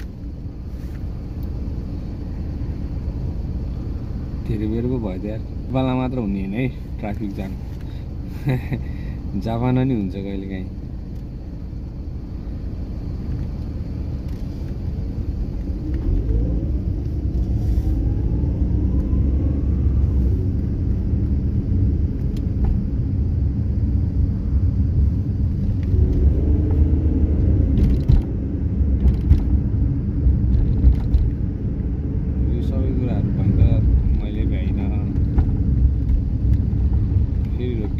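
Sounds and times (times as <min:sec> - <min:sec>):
car road and engine rumble: 0:00.0 - 0:37.9
rising whine: 0:11.1 - 0:37.9.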